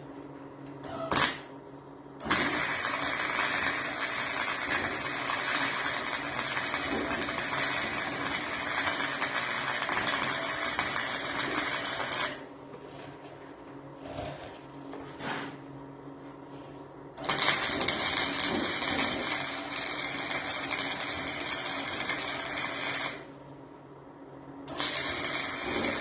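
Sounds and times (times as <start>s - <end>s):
welding arc crackling hiss: 2.2s - 12.5s, 17.2s - 23.3s, 24.7s - 26.0s.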